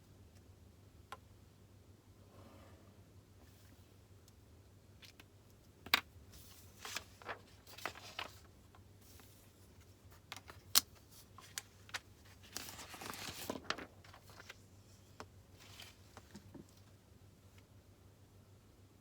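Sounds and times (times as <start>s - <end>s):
paper rustling: 6.3s - 14.6s, 15.6s - 16.6s.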